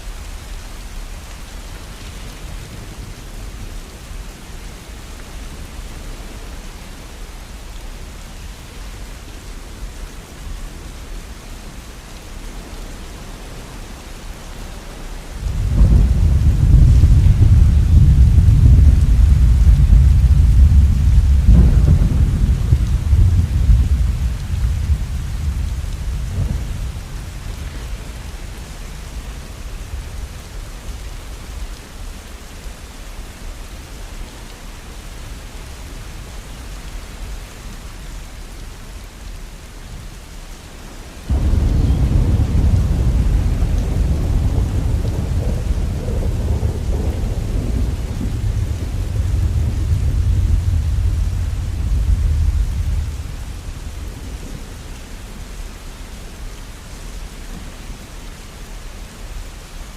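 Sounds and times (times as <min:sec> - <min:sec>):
steady rain: 0:00.0 - 0:59.9
thunder rumbling: 0:15.4 - 0:30.7, 0:41.3 - 0:55.4.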